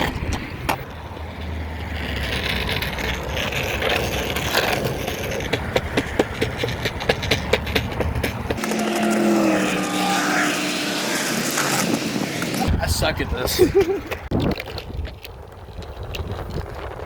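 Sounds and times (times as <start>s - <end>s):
skateboard wheel rumble: 0.0s - 17.0s
electric motor hum: 8.6s - 12.7s.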